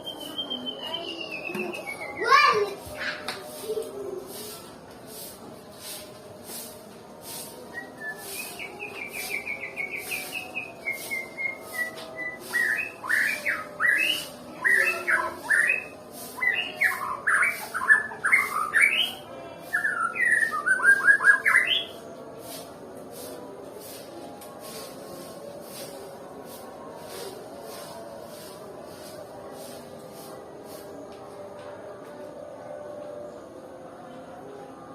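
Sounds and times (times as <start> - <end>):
songbird whistling song: 0.0 - 2.4, 7.7 - 22.0.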